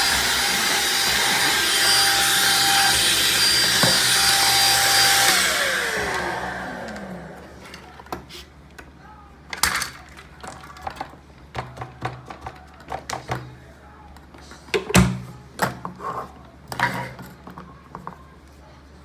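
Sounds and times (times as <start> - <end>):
vacuum motor whine: 0.0 - 7.9.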